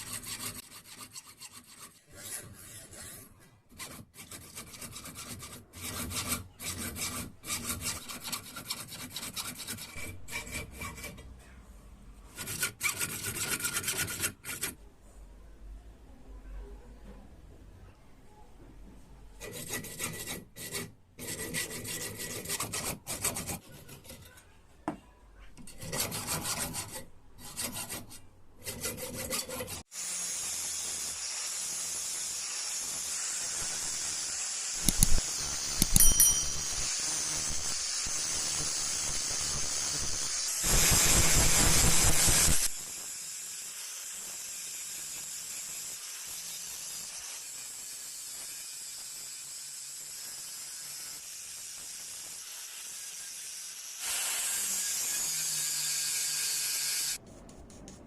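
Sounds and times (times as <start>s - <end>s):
filing on metal: 0.0s - 11.6s, 12.2s - 14.8s, 19.4s - 24.5s, 25.6s - 29.9s, 30.8s - 43.0s
ringing metallic clinks: 35.8s - 36.9s.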